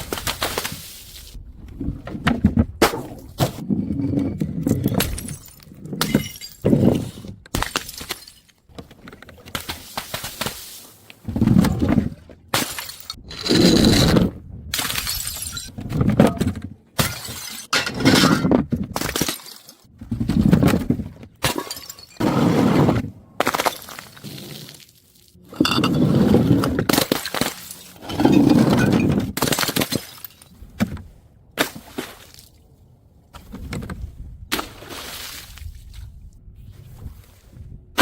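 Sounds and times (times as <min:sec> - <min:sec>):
glass bottles smashing: 0:04.8 - 0:08.6, 0:12.6 - 0:13.2, 0:14.8 - 0:15.7, 0:17.0 - 0:19.8, 0:21.4 - 0:22.2.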